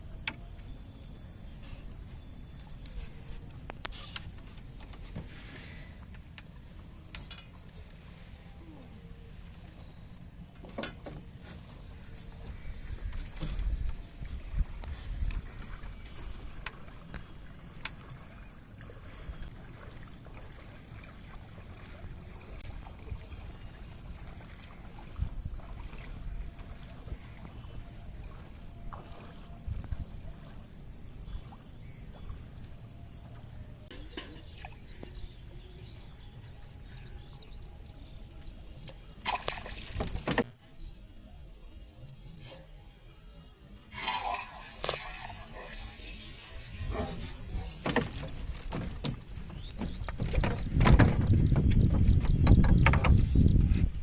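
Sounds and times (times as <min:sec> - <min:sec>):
boat engine rumble: 0:00.0 - 0:40.7, 0:43.6 - 0:54.0
water sounds: 0:11.2 - 0:35.5, 0:38.4 - 0:40.6, 0:43.7 - 0:53.3
knocks: 0:47.8 - 0:53.3.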